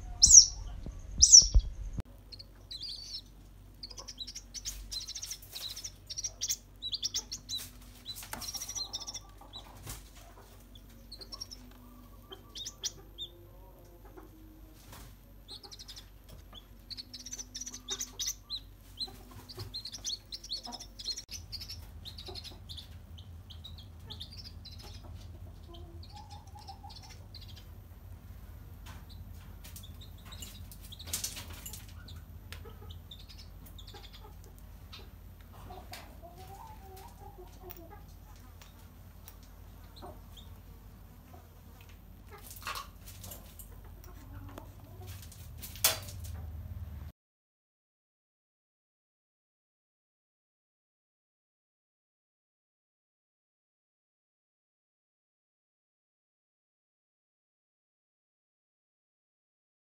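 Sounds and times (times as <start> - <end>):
chicks peeping: 0.0 - 46.4
small knocks and rustles: 7.4 - 11.0, 28.8 - 32.7, 41.8 - 46.6.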